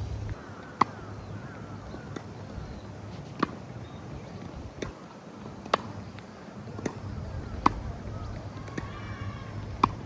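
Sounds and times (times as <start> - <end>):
tennis ball struck by rackets: 5.6 - 5.9, 7.6 - 7.8, 9.7 - 10.0.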